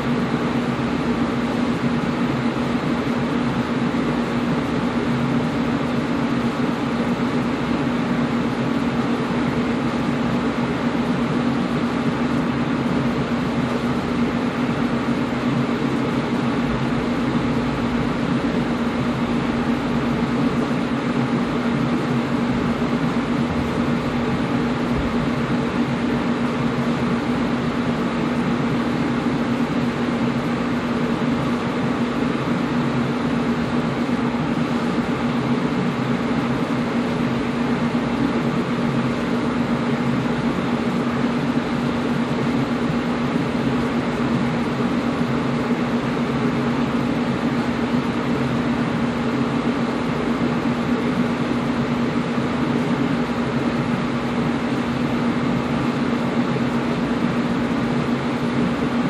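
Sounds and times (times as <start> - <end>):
air conditioner air rushing: 0.0 - 59.0
low motor hum: 8.2 - 29.4.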